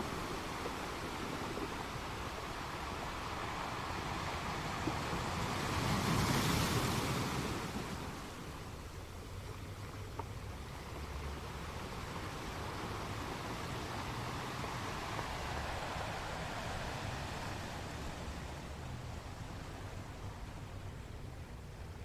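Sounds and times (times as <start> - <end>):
steady rushing noise: 10.5 - 22.0.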